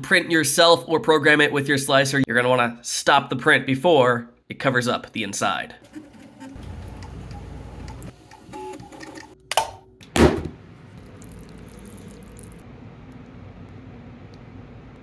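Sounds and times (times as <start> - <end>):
three d printer motors humming: 5.8 - 9.4.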